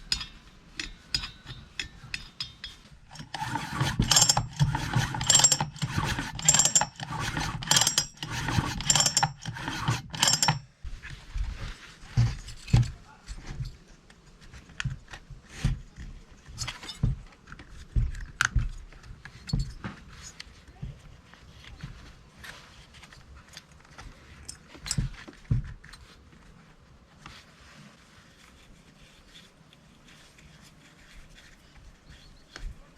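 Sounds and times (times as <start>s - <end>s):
mechanical rasping whir: 3.1s - 10.5s.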